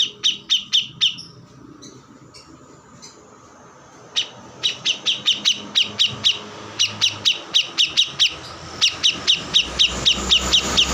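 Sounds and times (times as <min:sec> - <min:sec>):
bird sharp downward chirps: 0:00.0 - 0:01.4, 0:04.0 - 0:10.9.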